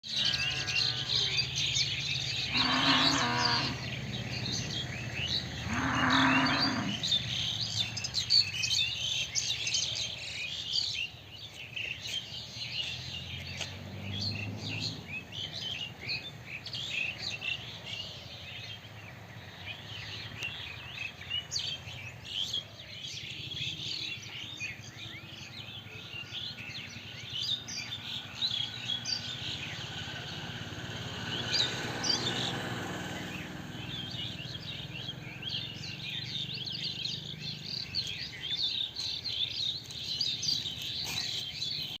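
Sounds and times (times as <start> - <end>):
birds chirping: 0.0 - 42.0
cow mooing: 0.1 - 1.5, 2.4 - 3.9, 5.6 - 7.1.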